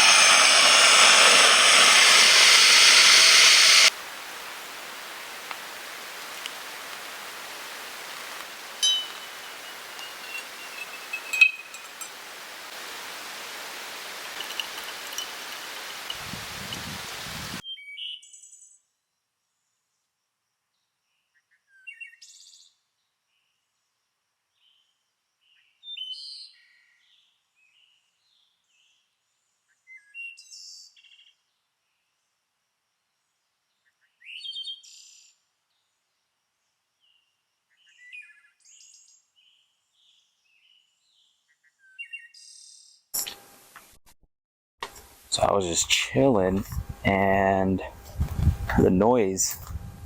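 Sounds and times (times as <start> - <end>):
songbird chirping: 8.7 - 12.1.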